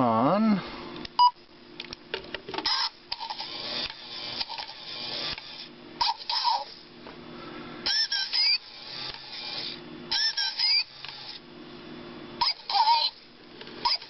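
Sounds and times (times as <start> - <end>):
small toy motor whirring: 2.6 - 6.8, 7.8 - 11.4, 12.4 - 14.0.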